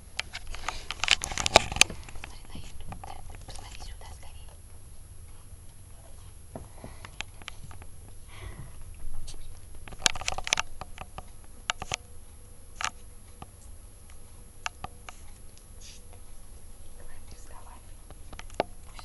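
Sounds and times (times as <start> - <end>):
sharp clicks: 9.6 - 12.1.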